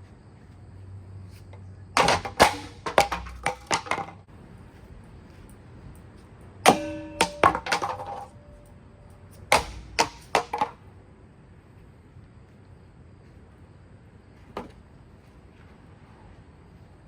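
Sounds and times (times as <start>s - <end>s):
clattering: 2.0s - 4.2s, 6.7s - 8.7s
hard impacts on ceiling fan: 9.5s - 10.6s.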